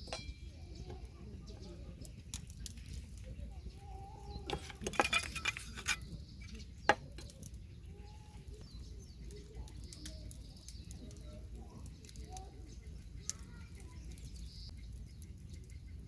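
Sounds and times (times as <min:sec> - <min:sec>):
utensils and dishes clinking: 0:00.0 - 0:00.6, 0:04.4 - 0:06.2
faint bird calls: 0:00.6 - 0:16.0.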